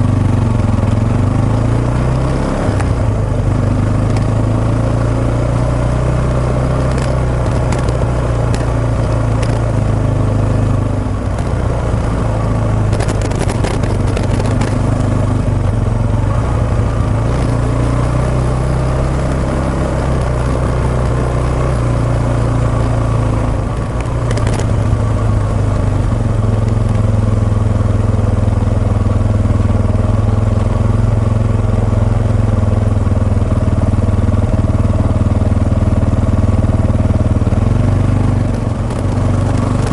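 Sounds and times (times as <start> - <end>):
motorcycle engine running: 0.0 - 39.9
microphone crackles: 12.9 - 15.1.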